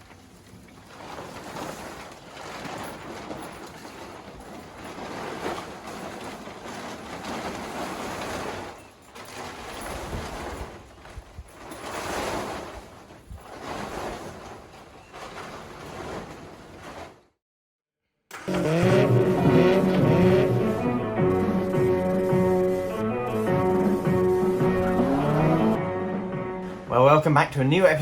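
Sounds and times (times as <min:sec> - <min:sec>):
rushing noise: 0:18.4 - 0:27.0.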